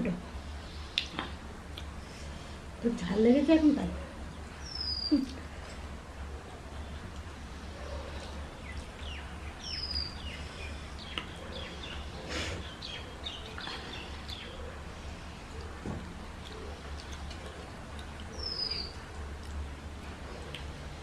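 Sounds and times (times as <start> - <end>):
small birds chirping: 3.0 - 5.8, 6.5 - 19.6
people eating by hand: 4.1 - 21.0.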